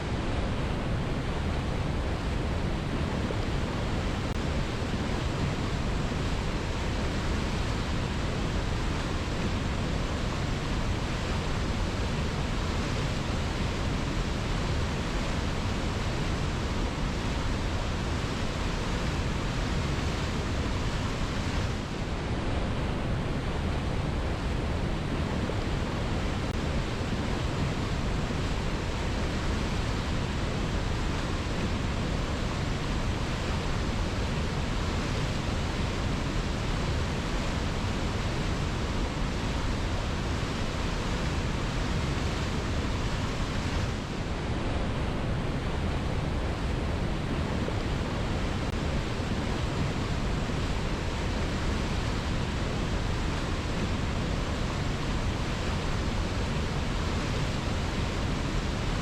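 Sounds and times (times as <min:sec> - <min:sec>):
waterfall rushing over rocks: 0:00.0 - 0:59.0.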